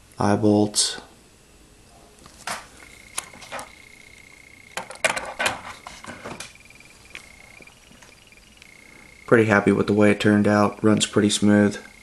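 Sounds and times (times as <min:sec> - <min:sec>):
faint high-pitched tone: 0:06.3 - 0:12.0.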